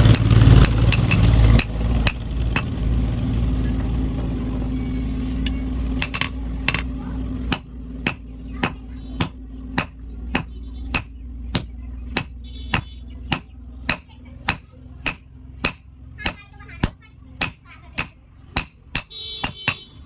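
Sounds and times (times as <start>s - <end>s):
hammer striking iron on anvil: 0.0s - 2.8s, 6.0s - 20.0s
steady mechanical hum: 0.0s - 20.0s.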